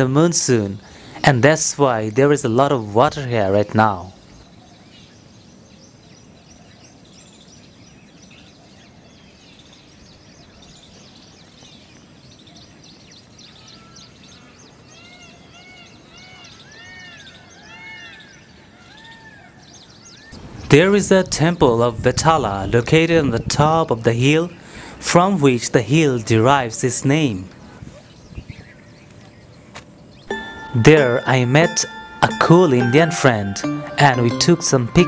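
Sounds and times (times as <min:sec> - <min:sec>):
birds chirping and calling: 0:00.0 - 0:35.0
short arched whistled notes: 0:30.3 - 0:35.0.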